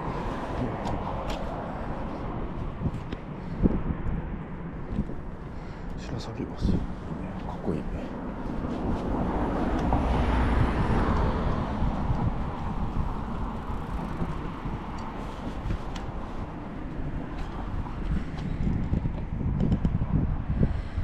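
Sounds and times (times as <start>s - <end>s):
steady low rumble: 0.0s - 21.0s
vehicle driving past: 7.1s - 15.6s.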